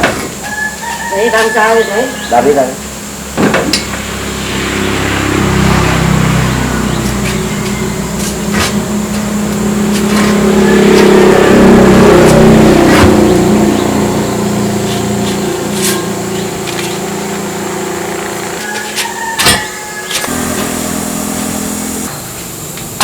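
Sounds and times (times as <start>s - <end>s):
large engine running: 3.9s - 18.6s, 20.2s - 23.0s.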